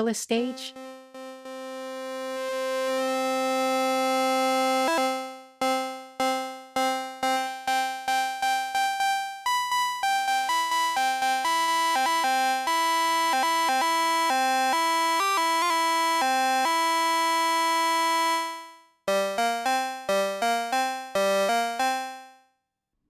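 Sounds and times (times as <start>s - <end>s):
sawtooth synthesizer notes: 0.7s - 3.3s.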